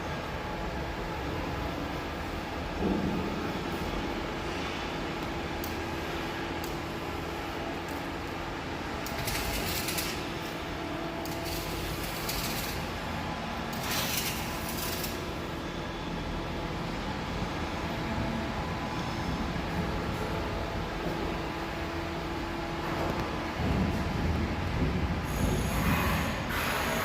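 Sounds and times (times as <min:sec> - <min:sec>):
welding arc crackling and hissing: 0:05.2 - 0:15.5, 0:25.2 - 0:27.0.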